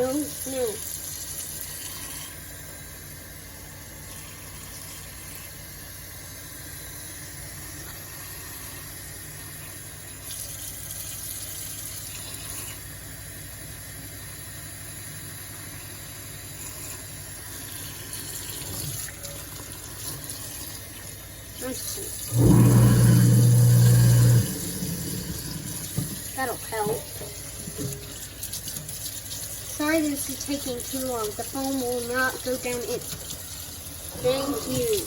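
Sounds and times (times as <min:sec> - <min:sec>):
tap water running into sink: 0:07.5 - 0:12.9, 0:16.4 - 0:35.0
steady low hum: 0:20.9 - 0:28.2.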